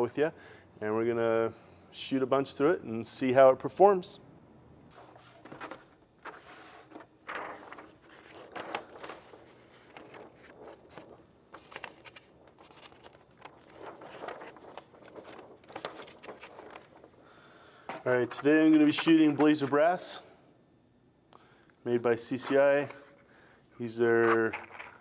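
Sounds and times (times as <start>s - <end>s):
rustling: 4.9s - 19.7s.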